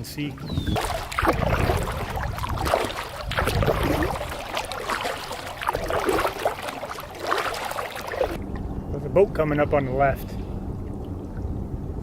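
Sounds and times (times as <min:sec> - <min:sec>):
water lapping against kayak hull: 0:00.0 - 0:08.8
low rumble: 0:00.4 - 0:12.0.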